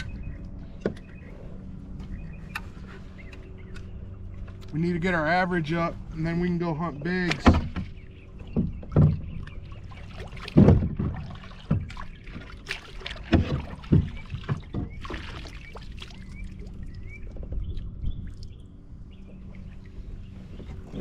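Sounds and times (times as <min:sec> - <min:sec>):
gear knocking against kayak hull: 0:07.0 - 0:15.2.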